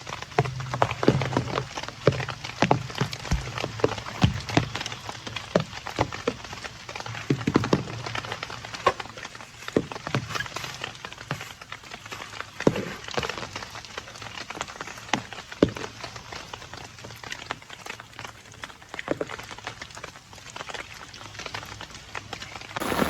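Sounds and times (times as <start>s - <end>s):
raindrops tapping on surface: 0.0s - 23.0s
heavy rain hiss: 22.8s - 23.0s.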